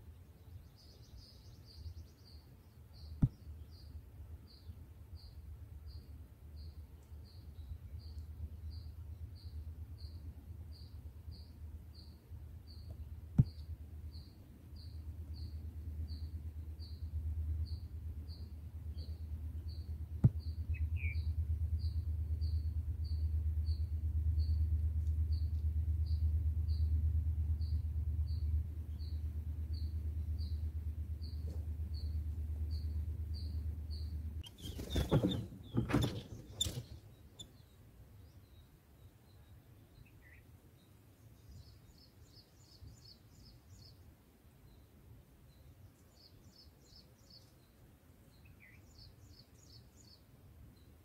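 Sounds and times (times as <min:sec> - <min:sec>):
bird chirping: 0:00.0 - 0:44.0, 0:45.5 - 0:50.2
low steady hum: 0:00.0 - 0:51.0
low rumble: 0:13.1 - 0:34.4.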